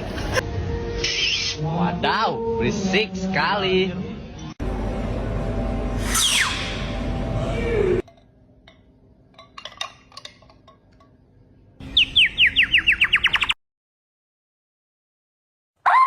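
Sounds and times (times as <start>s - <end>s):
bird whistling falling notes: 6.0s - 6.9s.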